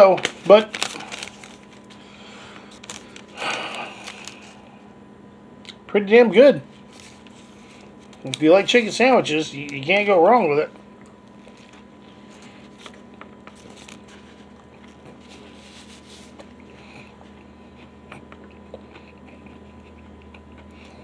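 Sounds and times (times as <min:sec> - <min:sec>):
steady hum: 0:00.0 - 0:21.0
man chewing crispy food: 0:00.2 - 0:04.9, 0:10.7 - 0:21.0.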